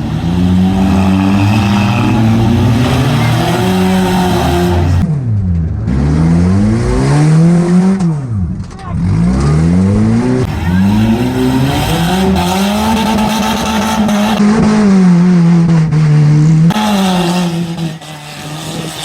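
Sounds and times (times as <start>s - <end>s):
car engine revving hard: 0.0s - 5.0s, 9.0s - 19.0s.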